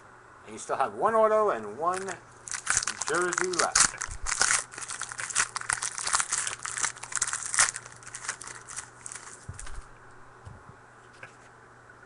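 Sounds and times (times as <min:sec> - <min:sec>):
card wrapper crinkling and tearing: 0:01.9 - 0:09.9
cards being handled: 0:01.9 - 0:09.9.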